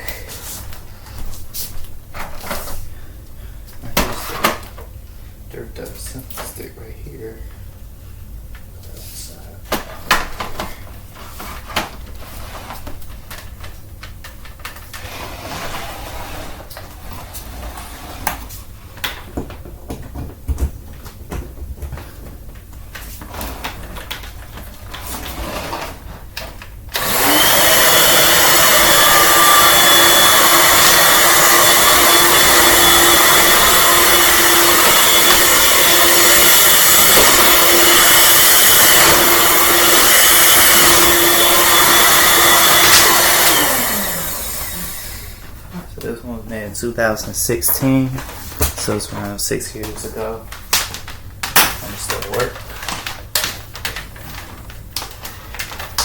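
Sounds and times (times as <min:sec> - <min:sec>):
vacuum motor whining: 0:26.6 - 0:45.9.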